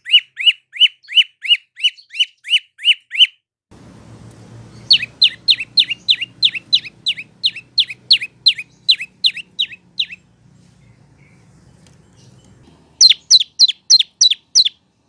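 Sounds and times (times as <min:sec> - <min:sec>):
bird calling sharp descending notes: 0:04.5 - 0:10.3.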